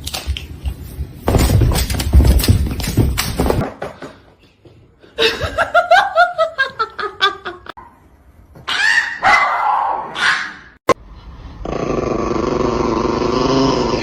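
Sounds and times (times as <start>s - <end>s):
person laughing: 5.2s - 7.8s.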